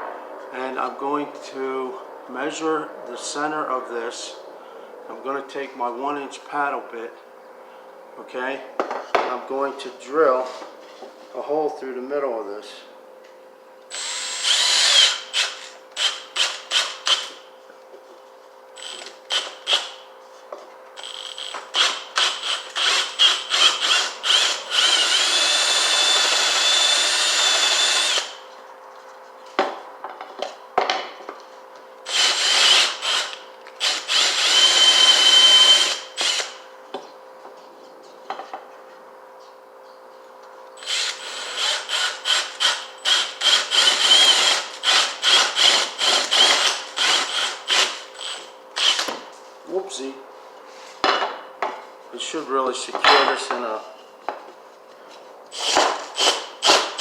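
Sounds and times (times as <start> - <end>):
power drill boring through wood: 13.9 - 17.3, 18.8 - 19.9, 21.0 - 28.4, 32.1 - 36.6, 40.8 - 49.1, 55.5 - 57.0.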